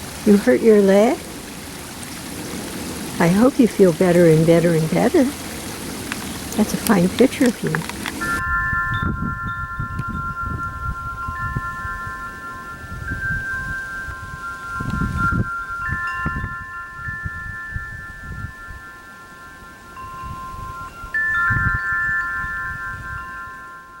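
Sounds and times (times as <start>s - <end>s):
chimes ringing: 8.2s - 24.0s.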